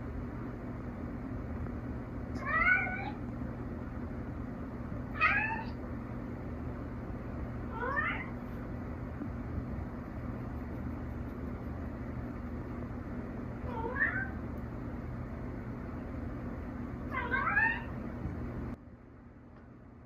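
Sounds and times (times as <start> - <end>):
steady low hum: 0.0 - 20.0
cat meowing: 2.4 - 3.2, 5.2 - 5.8, 7.7 - 8.4, 13.6 - 14.4, 17.1 - 18.0.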